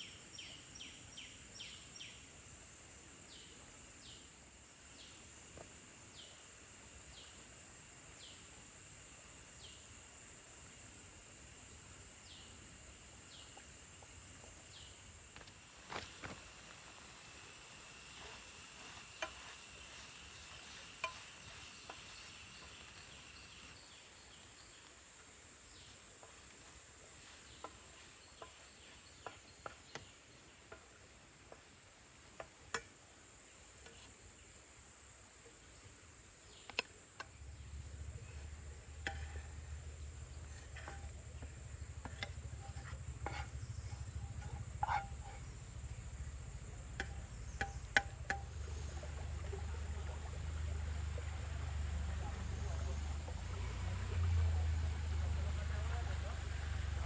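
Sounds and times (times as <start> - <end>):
low steady rumble: 37.2 - 57.0.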